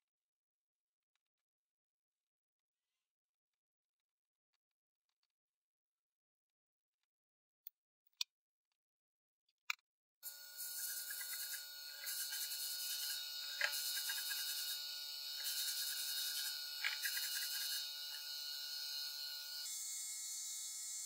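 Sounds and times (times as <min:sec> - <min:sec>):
abrasive rubbing on workpiece: 0:10.3 - 0:19.6.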